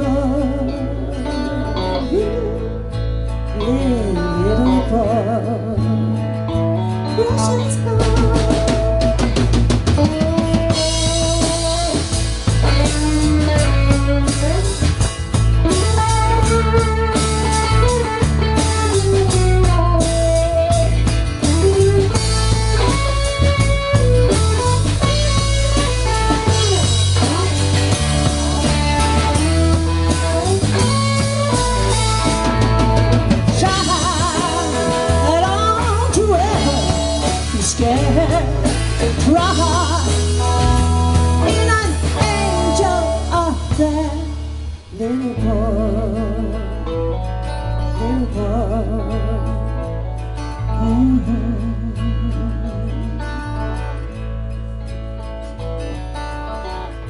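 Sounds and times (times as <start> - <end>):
guitar solo: 0.0 - 57.0
drum kit and bass beat: 7.2 - 45.1.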